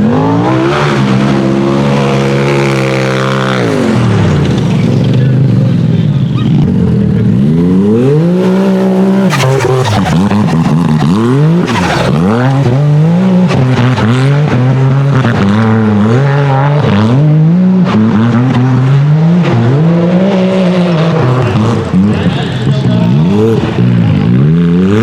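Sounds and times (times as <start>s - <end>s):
buggy engine revving: 0.0s - 25.0s.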